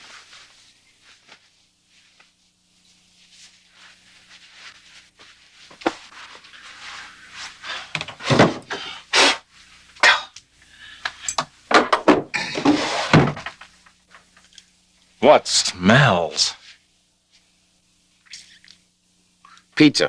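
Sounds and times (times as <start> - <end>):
rustling and rubbing handling: 0.0 - 8.6.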